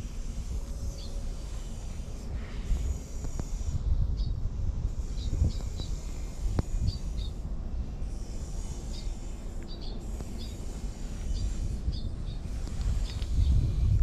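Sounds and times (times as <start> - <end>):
small birds chirping: 4.1 - 4.4, 5.0 - 7.4, 8.1 - 13.8.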